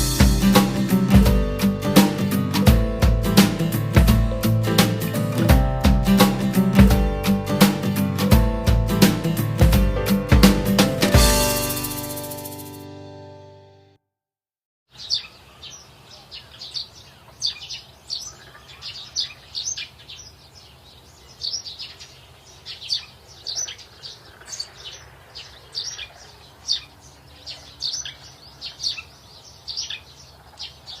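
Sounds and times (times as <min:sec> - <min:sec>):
small birds chirping: 0:14.9 - 0:31.0.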